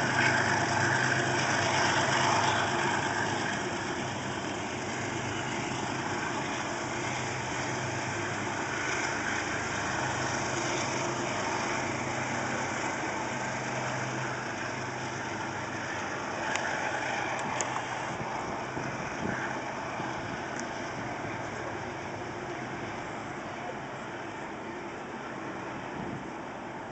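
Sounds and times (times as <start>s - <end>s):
diesel train engine hum: 0.0s - 26.9s.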